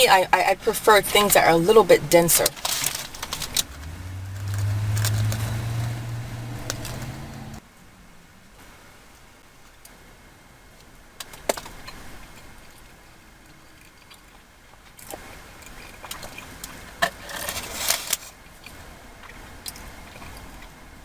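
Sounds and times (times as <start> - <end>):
packaging crinkling and rustling: 2.4 - 3.7, 17.0 - 18.4.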